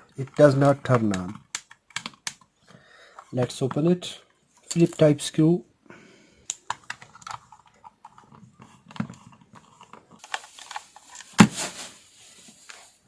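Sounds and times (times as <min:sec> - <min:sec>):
screwdriver clicking and scraping plastic: 0:00.2 - 0:02.5, 0:06.5 - 0:11.2.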